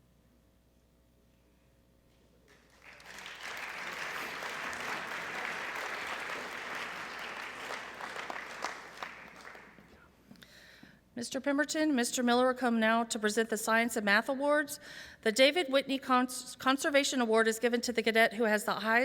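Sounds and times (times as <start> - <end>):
audience applause: 2.5 - 9.9.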